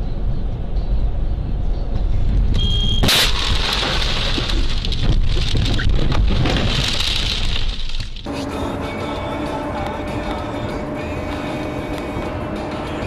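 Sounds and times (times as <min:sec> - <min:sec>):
vehicle road rumble: 0:00.0 - 0:13.0
loud crash: 0:03.0 - 0:08.0.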